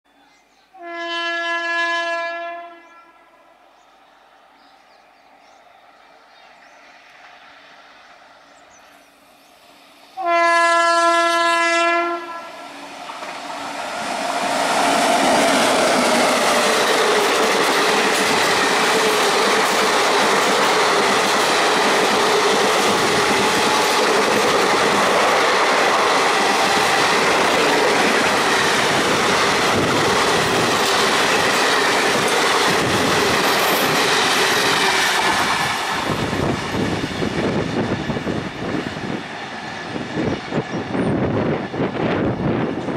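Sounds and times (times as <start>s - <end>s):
locomotive horn blast: 0.8s - 3.3s, 10.2s - 12.7s
train rushing past: 3.5s - 42.9s.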